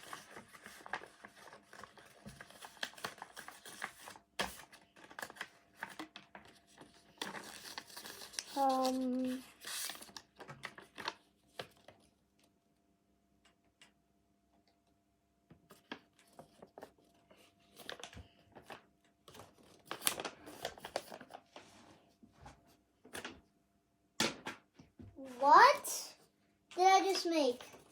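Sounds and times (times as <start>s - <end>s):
paper crinkling and rustling: 0.0s - 12.5s, 15.6s - 21.8s.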